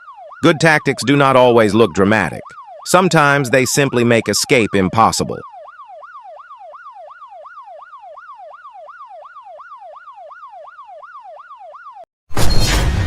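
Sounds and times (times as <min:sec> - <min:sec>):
electronic siren yelping: 0:00.0 - 0:12.1
loud crashing burst: 0:12.3 - 0:13.0.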